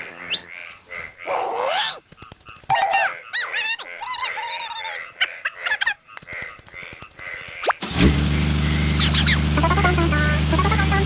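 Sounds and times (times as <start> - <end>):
animal-like calls and squeaks: 0.0 - 7.9, 8.7 - 9.5
sharp clicks: 2.0 - 2.7, 6.1 - 9.3.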